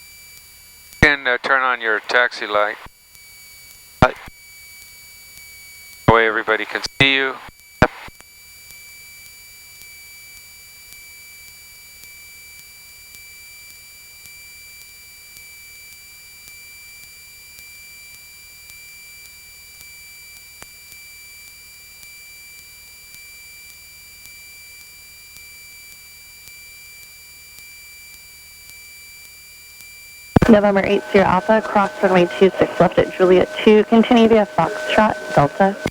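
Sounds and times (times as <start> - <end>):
high-pitched electrical whine: 30.4 - 35.9.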